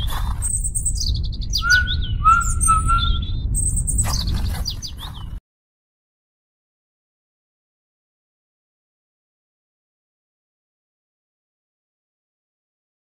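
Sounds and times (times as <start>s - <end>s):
birds chirping: 0.0s - 5.4s
low rumble: 0.0s - 5.4s.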